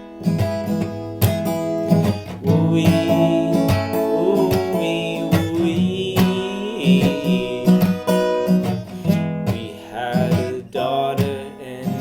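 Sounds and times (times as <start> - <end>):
acoustic guitar strumming: 0.0 - 12.0
person singing: 2.3 - 8.9, 9.5 - 12.0.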